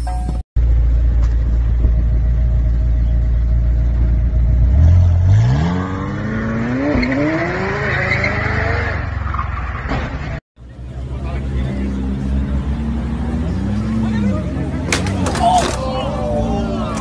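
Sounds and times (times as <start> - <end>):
sports car engine accelerating: 10.7 - 15.2.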